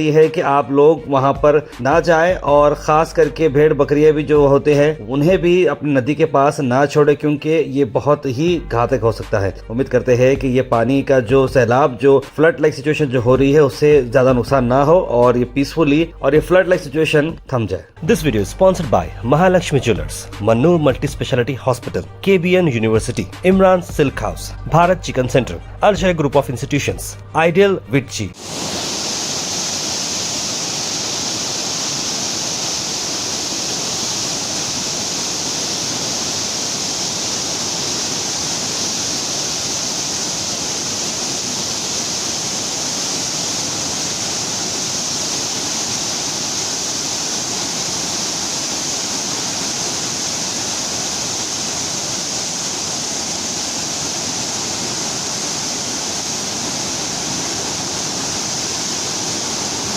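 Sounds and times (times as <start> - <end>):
river water rushing: 28.4 - 59.9.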